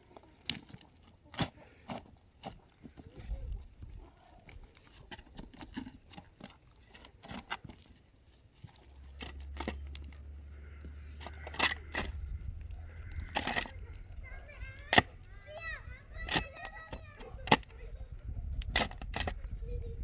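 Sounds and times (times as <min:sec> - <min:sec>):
low steady rumble: 0:08.2 - 0:20.0.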